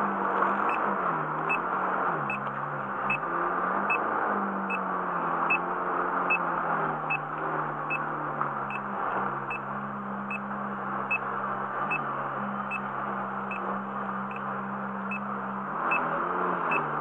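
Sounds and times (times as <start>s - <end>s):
car engine idling: 0.0s - 17.0s
short electronic beeps: 15.9s - 16.9s.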